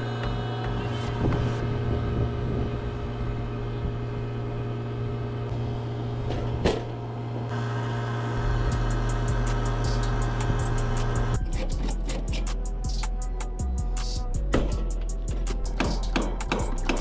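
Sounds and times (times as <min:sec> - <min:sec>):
deep low hum: 0:00.0 - 0:07.1, 0:08.4 - 0:16.1
electric machinery humming: 0:00.0 - 0:17.0.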